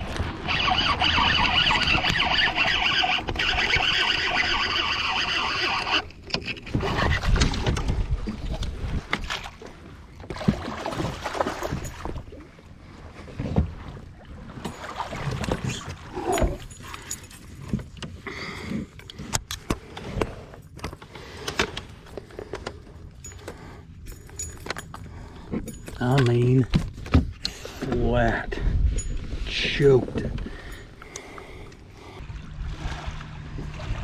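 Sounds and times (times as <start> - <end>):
fishing gear clicking and rattling: 0.4 - 8.0, 11.1 - 12.2, 14.6 - 32.2.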